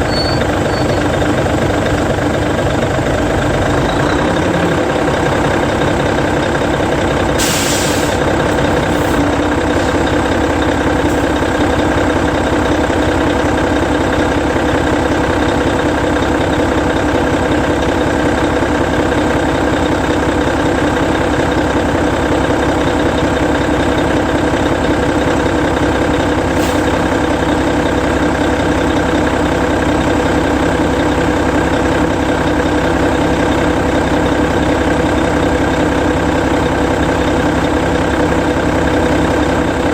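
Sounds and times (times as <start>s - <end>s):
bus diesel engine idling: 0.0s - 39.9s
compressed air hiss: 7.4s - 9.2s.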